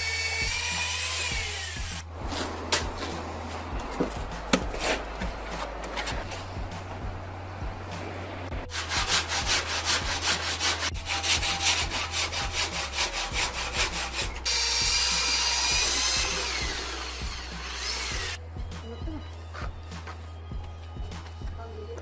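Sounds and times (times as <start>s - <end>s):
hand sawing: 8.6s - 18.4s
power tool whine: 14.4s - 18.4s.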